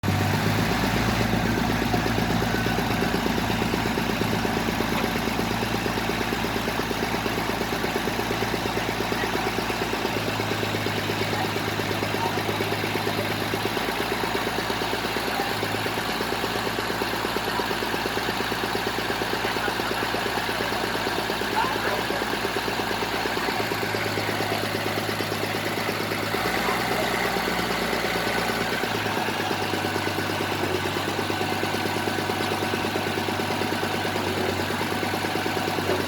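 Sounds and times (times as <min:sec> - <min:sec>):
drilling rig engine pulsing: 0:00.0 - 0:36.0.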